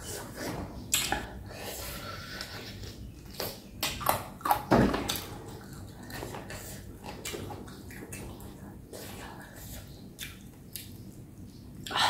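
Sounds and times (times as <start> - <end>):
wet chewing and smacking: 2.5 - 12.0.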